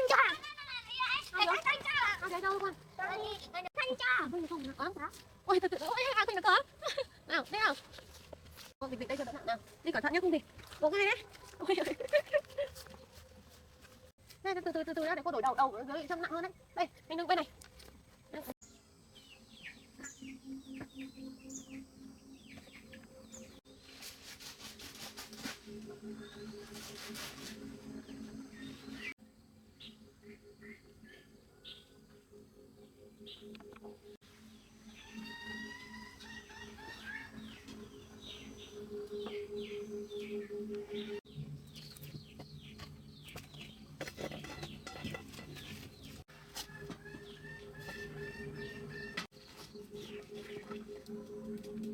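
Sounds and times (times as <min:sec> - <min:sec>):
birds chirping: 0:15.0 - 0:24.0, 0:25.7 - 0:51.9.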